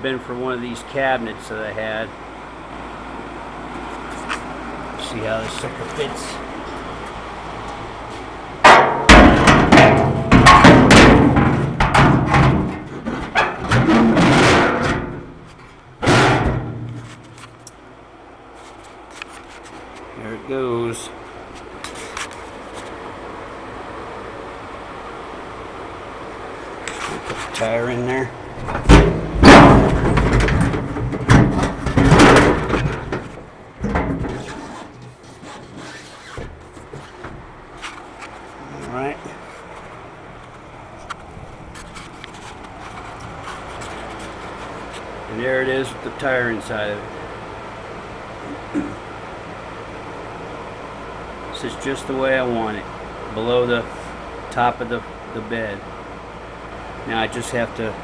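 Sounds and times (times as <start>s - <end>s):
tire scraping and rubbing: 3.7s - 7.2s, 7.8s - 17.7s, 18.4s - 20.4s, 21.0s - 23.1s, 26.5s - 46.0s
tire thumping onto wood: 8.1s - 17.6s, 28.6s - 38.6s
bangs and knocks on metal: 8.6s - 17.4s, 28.6s - 34.6s.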